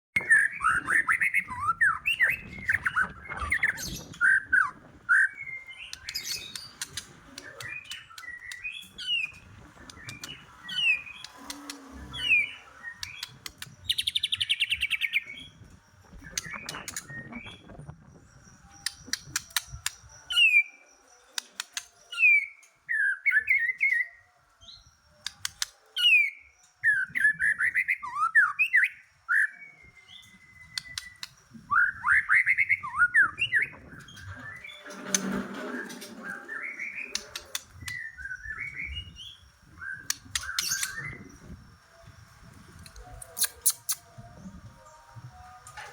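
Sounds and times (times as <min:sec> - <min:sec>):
bird whistling song: 0:00.2 - 0:45.9
bird clicks: 0:13.0 - 0:13.8, 0:21.4 - 0:22.0, 0:25.2 - 0:25.8, 0:30.8 - 0:31.4, 0:42.8 - 0:44.1.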